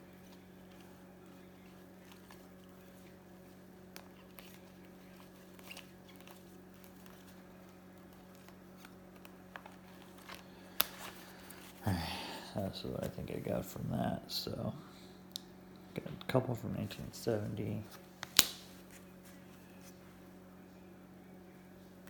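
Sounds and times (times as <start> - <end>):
steady low hum: 0.0 - 22.0
cards in plastic sleeves clicking: 3.8 - 11.7, 18.1 - 18.8.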